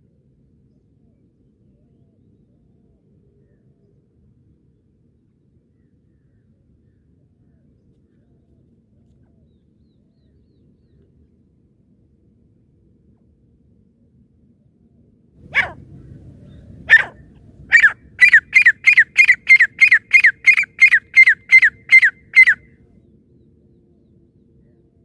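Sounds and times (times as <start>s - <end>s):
francolin calling: 15.5s - 15.8s, 16.9s - 22.7s.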